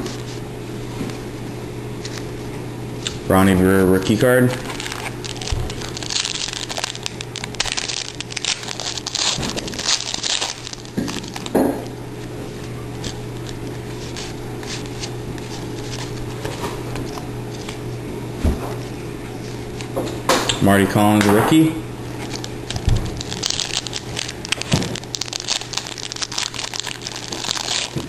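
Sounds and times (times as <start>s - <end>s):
steady low hum: 0.0s - 28.0s
foil wrapper crinkling: 3.0s - 17.9s, 22.1s - 28.0s.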